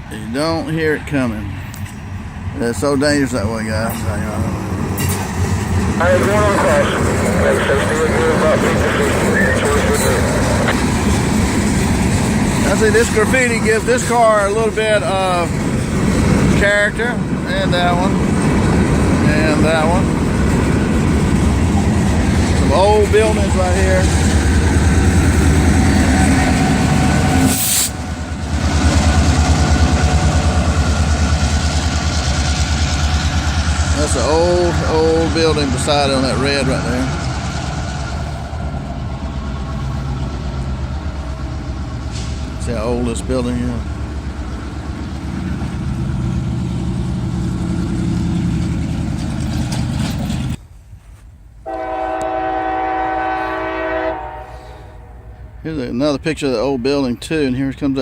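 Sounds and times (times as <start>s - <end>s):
freight train rumbling past: 0.0s - 50.6s, 51.6s - 58.0s
locomotive air horn blast: 25.8s - 28.1s, 51.6s - 55.6s.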